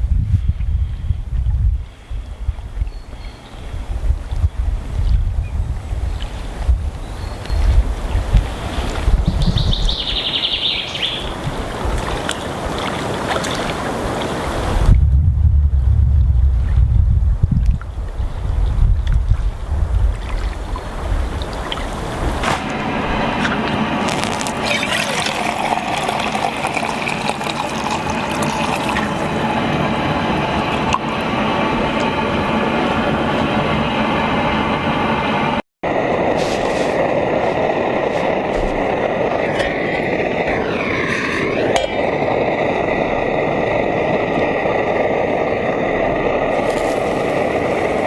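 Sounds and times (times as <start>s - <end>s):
wind buffeting microphone: 0.0s - 48.0s
steady outdoor rushing noise: 3.6s - 48.0s
bird trilling: 9.2s - 11.4s
water splashing and gurgling: 10.9s - 15.0s, 17.6s - 34.0s, 36.3s - 48.0s.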